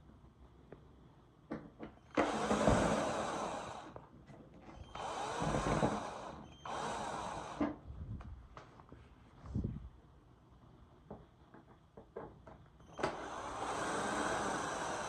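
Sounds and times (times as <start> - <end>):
handheld power tool motor: 2.1 - 4.0, 4.8 - 7.8, 13.0 - 15.0.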